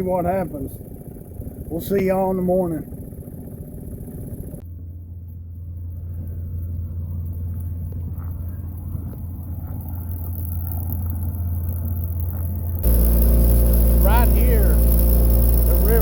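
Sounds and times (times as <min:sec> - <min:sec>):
boat motor humming: 0:00.0 - 0:16.0.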